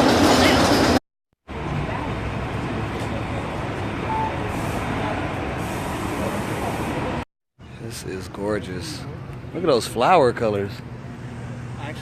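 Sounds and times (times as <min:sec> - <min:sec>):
vehicle rumble and hiss: 0:01.5 - 0:12.0
high beep: 0:04.1 - 0:04.5.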